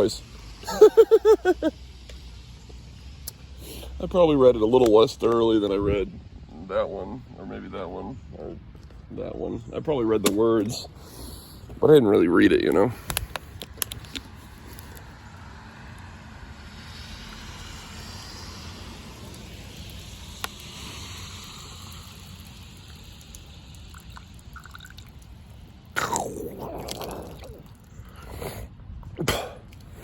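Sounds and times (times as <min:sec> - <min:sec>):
water splashing and dripping: 0:19.1 - 0:26.0.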